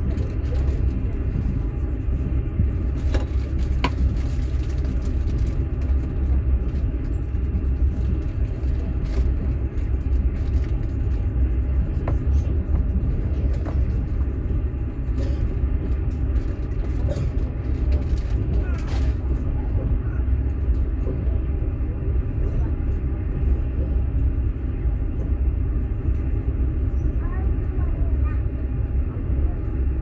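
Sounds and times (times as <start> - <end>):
train rumbling: 0.0 - 30.0.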